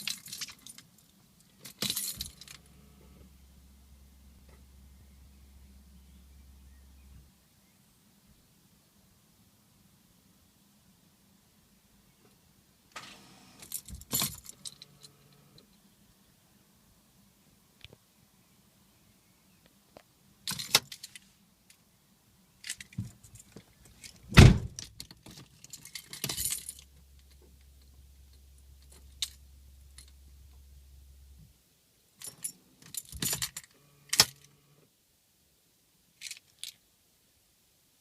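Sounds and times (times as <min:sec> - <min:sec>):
car keys jangling and clicking: 0:00.0 - 0:03.2, 0:13.0 - 0:15.6, 0:20.5 - 0:21.3, 0:22.6 - 0:30.2, 0:32.2 - 0:34.8
faint low hum: 0:00.0 - 0:37.9
loud thump: 0:24.3 - 0:24.8.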